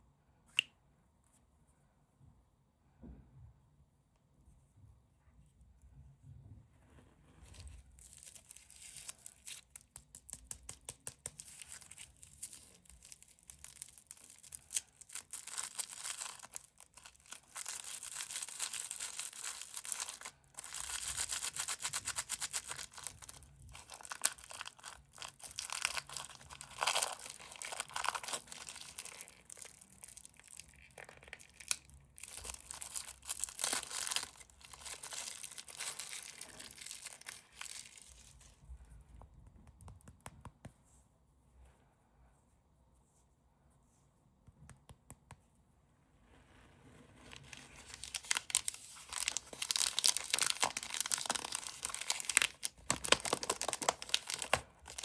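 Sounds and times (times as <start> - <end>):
plastic wrappers crinkling and tearing: 7.5 - 38.6, 47.3 - 55.0.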